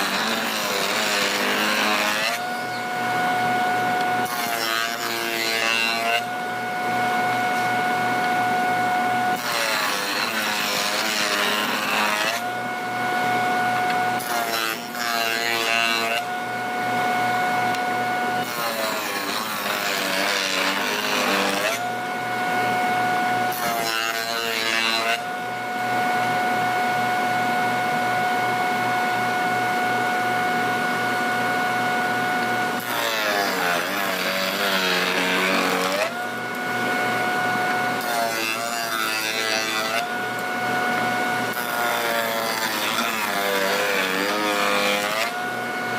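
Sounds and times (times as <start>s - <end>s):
power tool motor whining: 0.0s - 16.4s, 32.3s - 45.9s.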